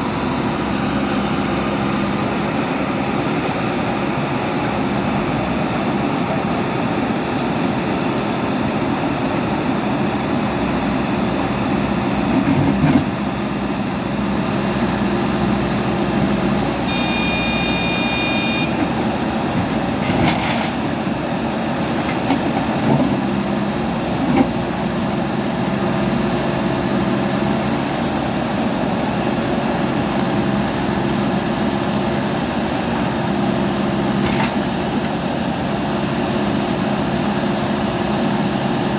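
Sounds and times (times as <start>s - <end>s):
diesel engines running under load: 0.0s - 38.9s
high-pitched tone: 16.9s - 18.8s.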